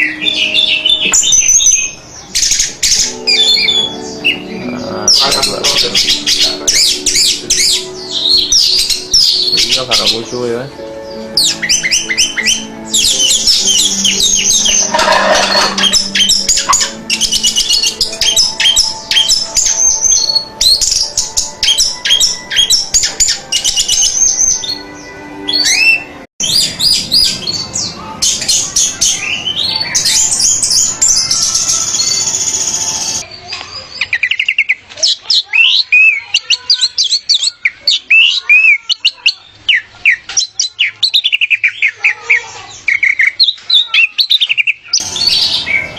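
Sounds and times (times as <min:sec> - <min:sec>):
thrush singing: 0:00.0 - 0:33.3.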